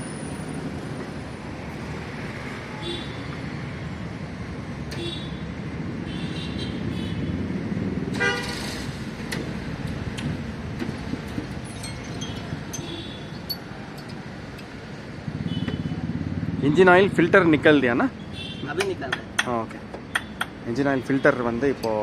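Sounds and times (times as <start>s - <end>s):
traffic rumble: 0.0s - 22.0s
small clinks and ticks: 11.7s - 14.7s.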